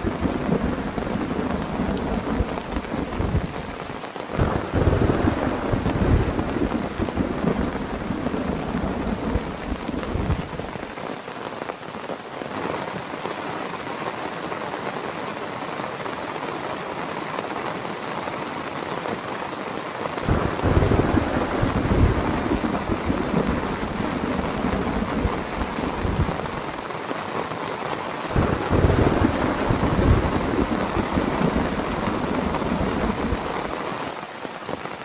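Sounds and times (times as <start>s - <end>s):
heavy rain falling: 0.0s - 35.0s
low rumbling: 20.3s - 26.6s.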